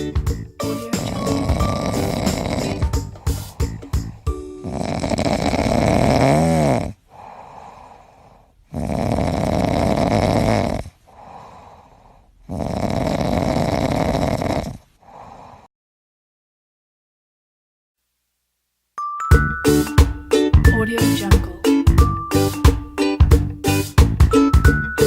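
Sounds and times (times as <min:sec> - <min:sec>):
loud snoring: 0:00.0 - 0:15.7
quiet breath out: 0:01.0 - 0:05.8, 0:06.8 - 0:08.7, 0:10.8 - 0:12.5, 0:14.7 - 0:15.7.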